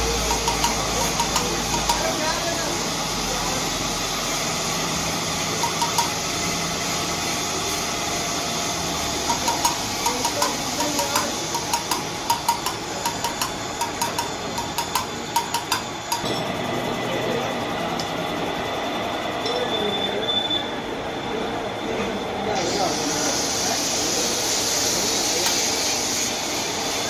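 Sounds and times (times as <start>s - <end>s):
steady background noise: 0.0s - 27.0s
metal tapping on metal: 0.1s - 2.2s, 5.6s - 6.2s, 9.3s - 16.5s.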